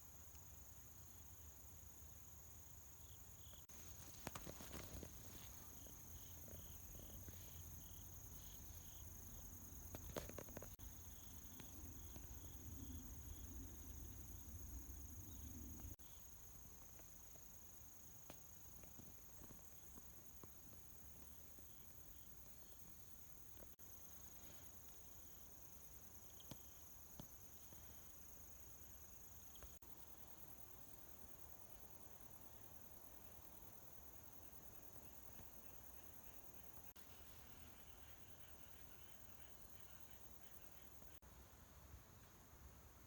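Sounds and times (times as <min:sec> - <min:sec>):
crickets trilling: 0:00.4 - 0:31.0.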